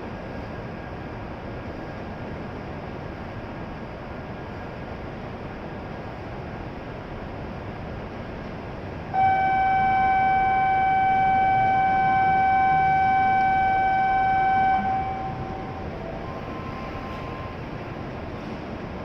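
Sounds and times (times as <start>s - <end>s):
buzzer warning tone: 9.2s - 17.6s.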